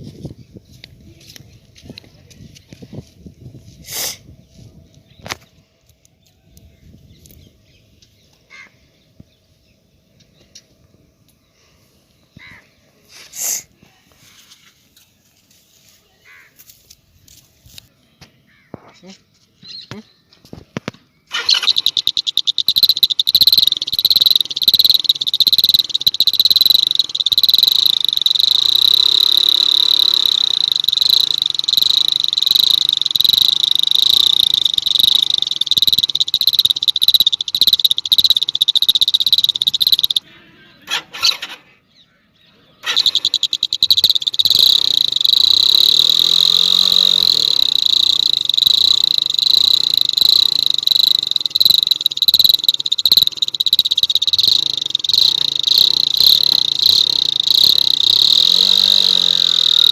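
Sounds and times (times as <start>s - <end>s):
high pulsing horn buzz: 42.9s - 59.9s.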